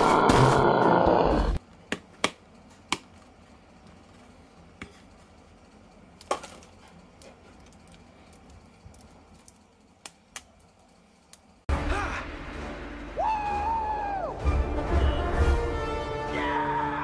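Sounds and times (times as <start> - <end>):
background music: 11.7 - 17.0.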